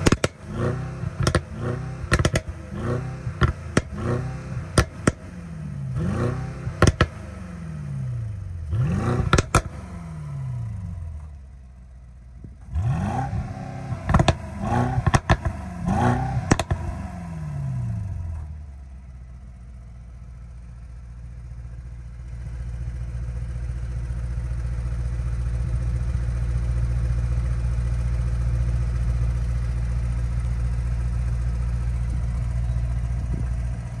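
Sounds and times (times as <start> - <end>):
exhaust crackles: 0.0 - 5.3, 5.9 - 7.3, 8.6 - 9.9, 12.4 - 17.1, 21.8 - 34.0
car engine revving: 0.0 - 11.3, 12.6 - 18.4
car engine idling: 0.0 - 34.0.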